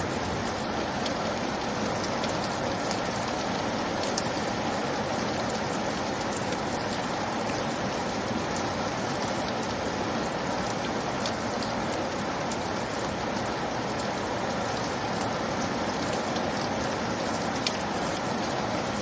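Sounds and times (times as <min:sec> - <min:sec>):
rain drop ticks: 0:00.0 - 0:19.0
steady rain hiss: 0:00.0 - 0:19.0.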